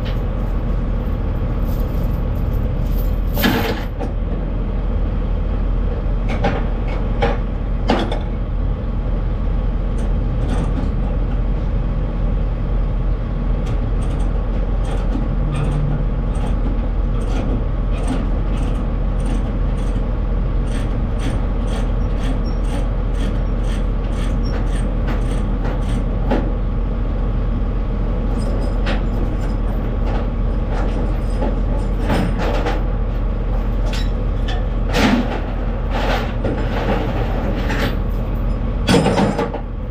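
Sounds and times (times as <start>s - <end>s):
truck engine and road drone: 0.0s - 39.9s.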